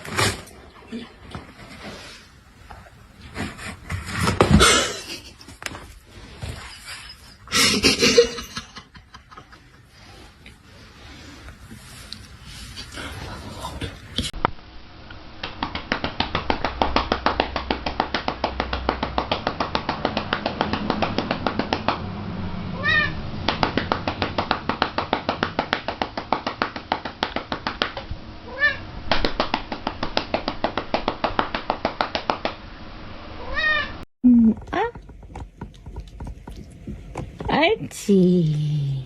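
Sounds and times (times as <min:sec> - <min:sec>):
cat meowing: 0:22.8 - 0:23.2, 0:28.5 - 0:28.8, 0:33.4 - 0:34.0.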